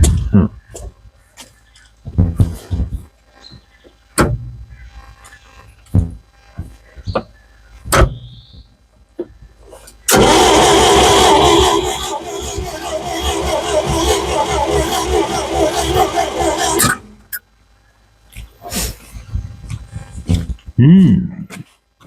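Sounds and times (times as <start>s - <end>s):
engine cranking without starting: 10.1s - 17.1s.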